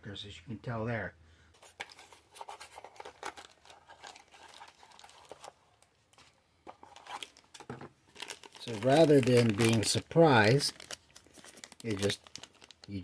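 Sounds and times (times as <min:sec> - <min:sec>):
plastic bag crinkling: 0:01.6 - 0:05.6, 0:06.8 - 0:13.0.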